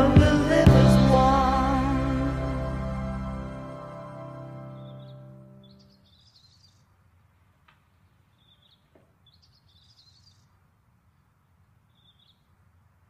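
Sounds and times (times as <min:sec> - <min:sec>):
low hum: 0:00.0 - 0:05.6
faint birdsong: 0:03.9 - 0:13.0.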